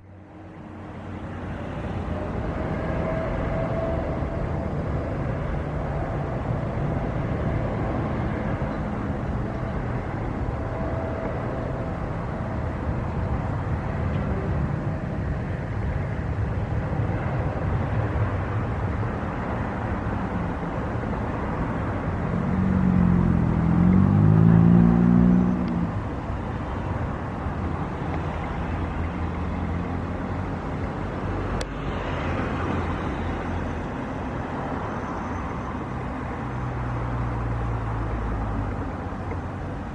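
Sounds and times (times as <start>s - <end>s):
vehicle speeding up and passing: 20.7s - 27.1s.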